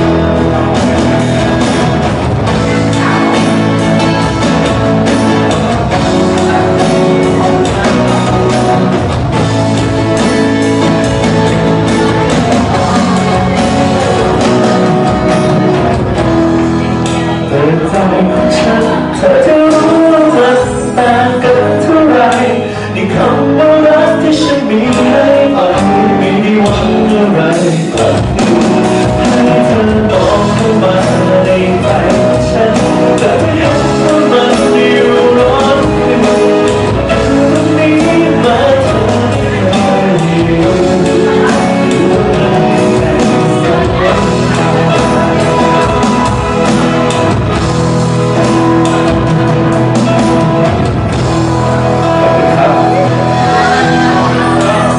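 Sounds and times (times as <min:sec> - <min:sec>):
man singing: 0:00.0 - 0:49.4, 0:50.0 - 0:54.9
drums: 0:00.0 - 0:54.9
guitar: 0:00.0 - 0:54.9.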